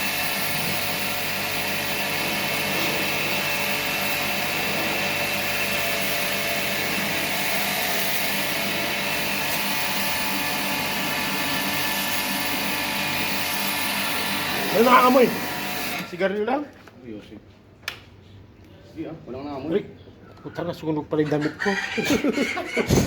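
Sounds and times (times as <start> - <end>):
pressure washer running: 0.0 - 16.2.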